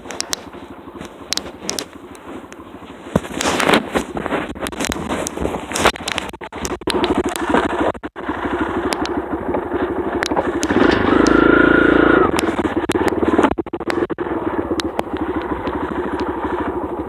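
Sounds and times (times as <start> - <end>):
dirt bike engine revving: 9.8 - 13.4.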